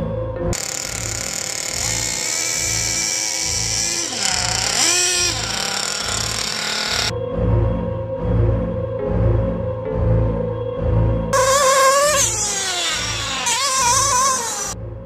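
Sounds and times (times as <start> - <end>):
small engine screaming at high revs: 0.6 - 7.1, 11.4 - 14.8.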